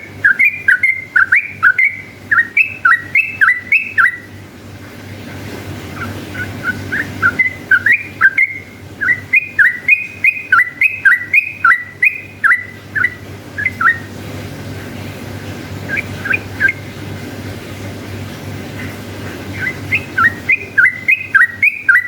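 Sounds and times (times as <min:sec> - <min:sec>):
bulbul singing bubbly notes: 0:00.0 - 0:04.4, 0:06.0 - 0:14.2, 0:15.7 - 0:17.0, 0:19.5 - 0:22.0
faint steady hum: 0:00.0 - 0:22.0.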